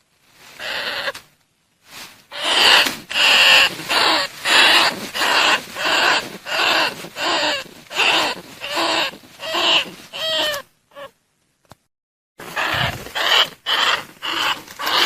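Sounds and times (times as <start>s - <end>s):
rat calls: 0.6s - 1.2s, 2.3s - 11.2s, 12.4s - 15.0s.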